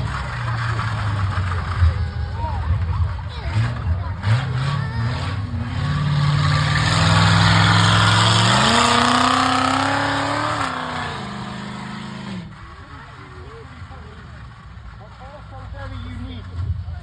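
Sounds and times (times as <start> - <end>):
vehicle engine revving: 0.0 - 17.0.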